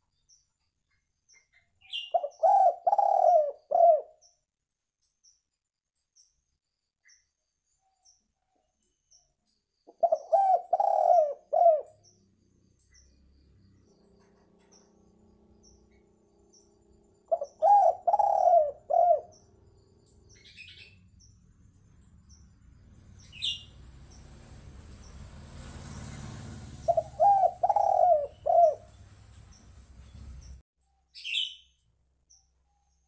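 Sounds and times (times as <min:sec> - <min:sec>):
dove cooing: 0:02.0 - 0:04.2, 0:09.9 - 0:12.1, 0:17.3 - 0:19.5, 0:25.9 - 0:29.2.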